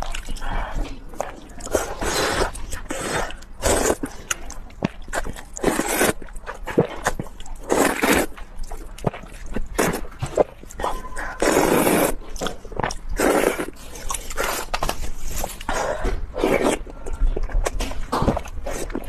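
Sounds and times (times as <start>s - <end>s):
wet chewing clicks: 0.0s - 19.0s
person slurping noodles: 1.6s - 4.1s, 5.6s - 6.2s, 6.8s - 8.4s, 9.8s - 10.5s, 11.3s - 12.2s, 13.2s - 16.9s.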